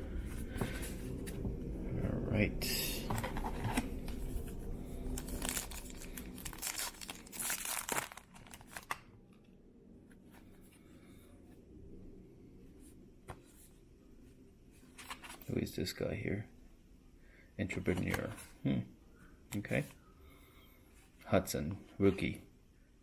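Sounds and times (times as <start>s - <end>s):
wrapper tearing and crinkling: 5.1s - 9.1s.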